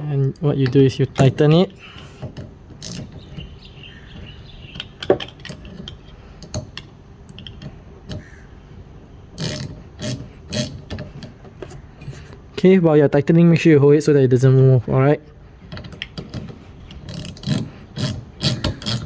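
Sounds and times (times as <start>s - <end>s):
ratchet wrench clicking: 2.7s - 3.2s, 9.4s - 10.9s, 16.9s - 19.0s.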